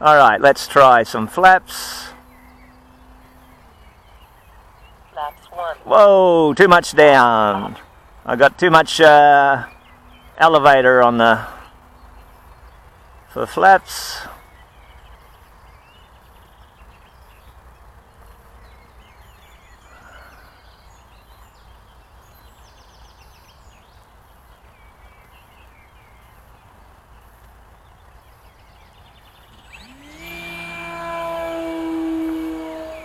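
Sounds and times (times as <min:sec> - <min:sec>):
wind: 0:00.0 - 0:33.0
model plane motor whine: 0:01.0 - 0:04.5, 0:29.5 - 0:33.0.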